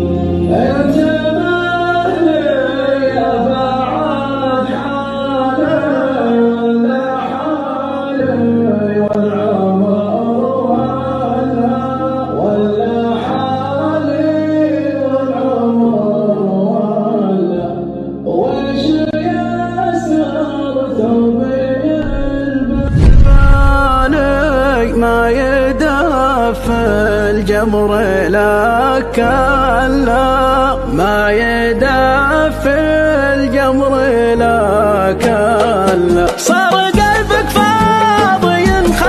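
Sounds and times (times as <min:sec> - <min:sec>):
low drone: 0:22.0 - 0:24.7.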